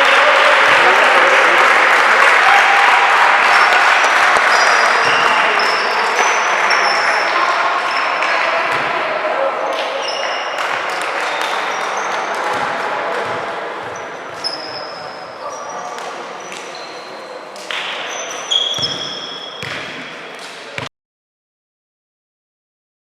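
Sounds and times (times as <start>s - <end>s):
voices of players and spectators: 0.0s - 20.9s
sneakers squeaking on floor: 4.5s - 8.9s, 9.7s - 20.9s
basketball bouncing: 12.4s - 14.8s, 18.8s - 20.0s.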